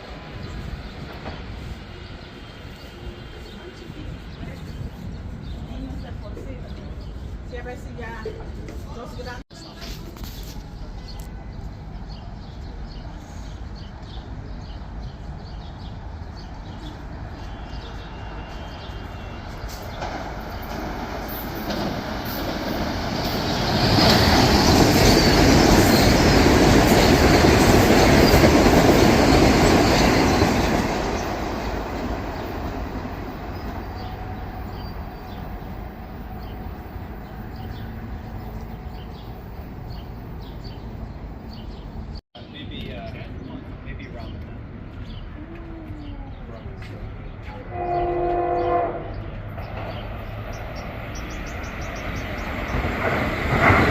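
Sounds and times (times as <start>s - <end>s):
electric train passing: 11.6s - 42.1s, 47.6s - 53.9s
wheels rattling over rail joints: 49.2s - 53.9s.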